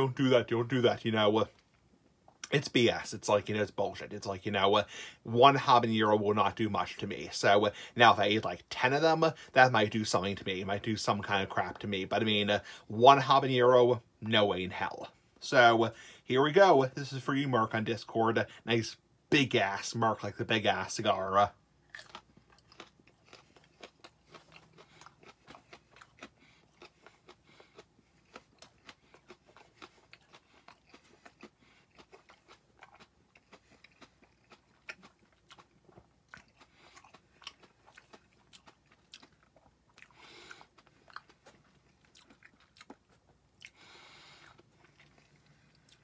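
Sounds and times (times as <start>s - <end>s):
chewing raw pepper: 21.8s - 46.0s.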